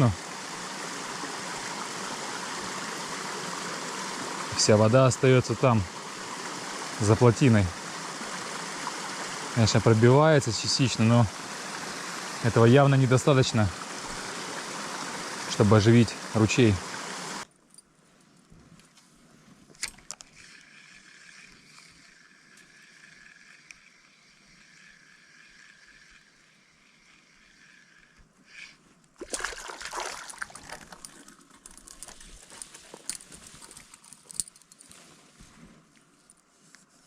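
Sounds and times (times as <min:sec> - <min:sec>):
water sloshing in a creek: 0:00.0 - 0:17.5, 0:27.2 - 0:35.3.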